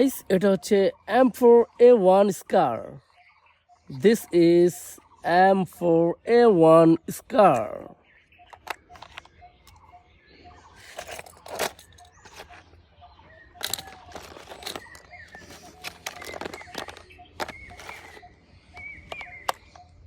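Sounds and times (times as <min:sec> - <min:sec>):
plastic toy rifle clicking and rattling: 0:08.5 - 0:09.8, 0:13.6 - 0:18.2, 0:18.8 - 0:19.7.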